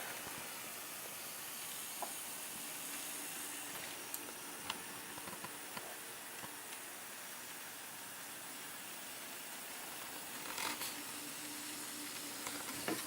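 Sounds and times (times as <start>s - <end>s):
model train motor hum: 0.0s - 13.0s
steady hiss: 0.0s - 13.0s.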